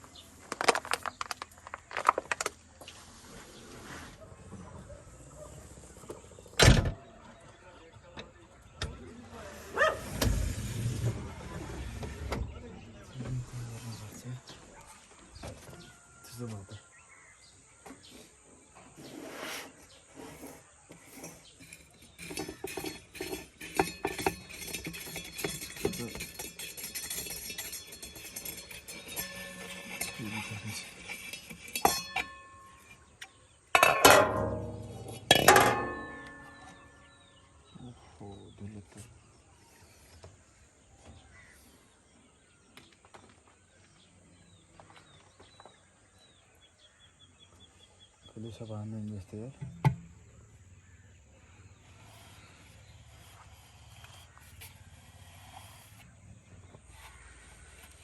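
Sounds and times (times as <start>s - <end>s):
clatter of small clinks and knocks: 0.4s - 2.6s, 21.1s - 33.0s
bird chirps: 36.1s - 58.0s.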